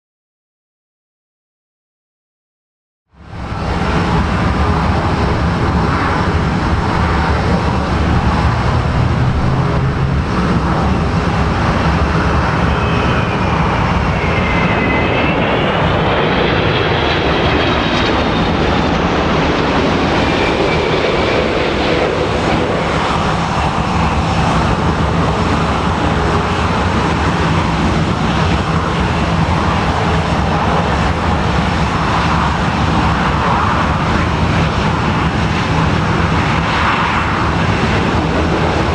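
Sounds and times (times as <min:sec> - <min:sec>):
faint engine whine: 0:03.2 - 0:31.8
jet engines running: 0:03.2 - 0:38.9.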